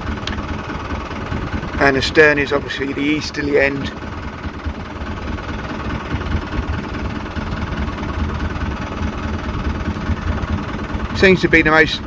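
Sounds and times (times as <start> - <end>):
boat engine idling: 0.0 - 12.0.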